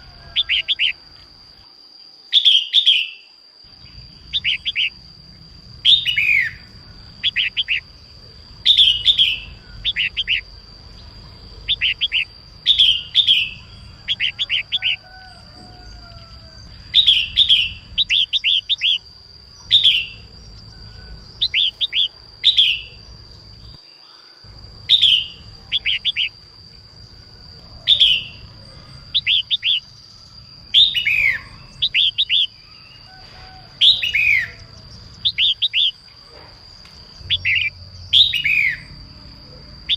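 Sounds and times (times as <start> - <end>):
high-pitched whine: 3.7 - 23.8, 24.4 - 39.9
bird calling sharp notes: 24.8 - 26.4.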